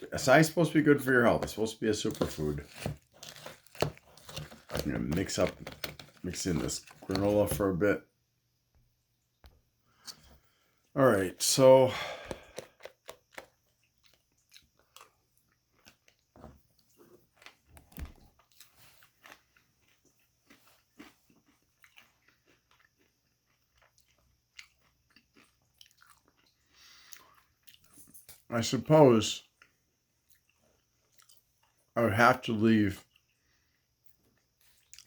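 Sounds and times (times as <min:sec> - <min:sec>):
chewing and crunching granola: 0:01.2 - 0:07.6, 0:12.2 - 0:28.1, 0:29.4 - 0:32.0, 0:32.9 - 0:35.0.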